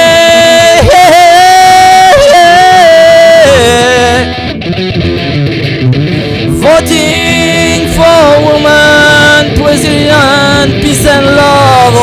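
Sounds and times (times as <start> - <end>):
backing music: 3.7 - 12.0.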